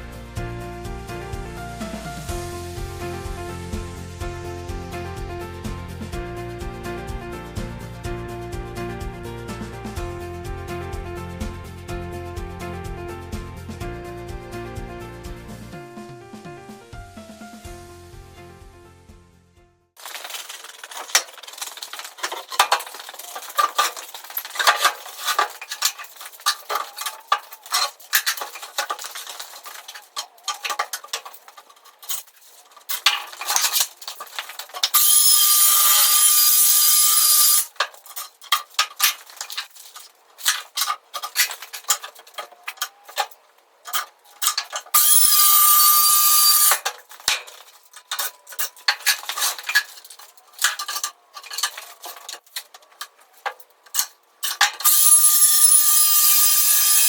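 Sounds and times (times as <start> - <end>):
tools clattering and clinking: 20.0 - 57.0
circular saw cutting with high whine: 34.9 - 37.7, 44.9 - 46.8, 54.8 - 57.0.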